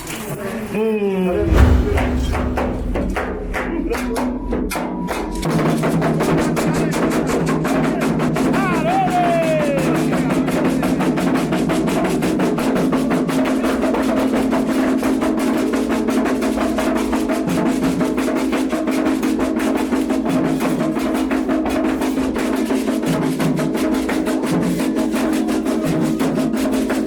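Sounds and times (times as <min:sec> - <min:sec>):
hand drums fast rhythm: 0:03.6 - 0:27.0.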